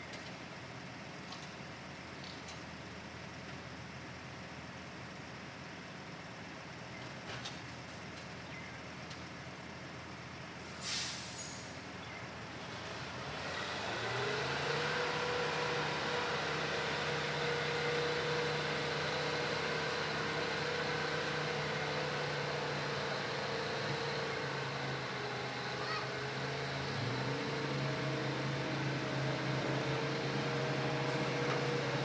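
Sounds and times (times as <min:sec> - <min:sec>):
air hiss: 0:10.6 - 0:11.8
diesel engine revving: 0:12.5 - 0:32.0.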